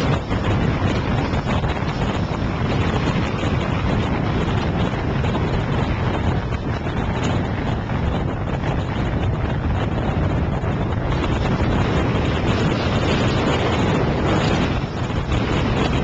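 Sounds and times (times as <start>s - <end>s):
blizzard wind buffeting microphone: 0.0s - 16.0s
blowing snow hissing: 9.1s - 16.0s.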